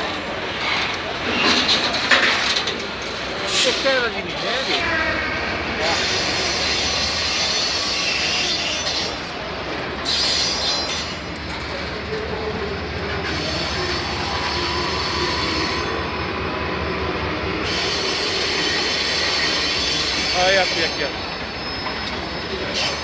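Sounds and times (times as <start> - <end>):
train wheels rumbling on rails: 0.0 - 23.0
faint wheel squeal: 5.8 - 11.4, 13.2 - 23.0.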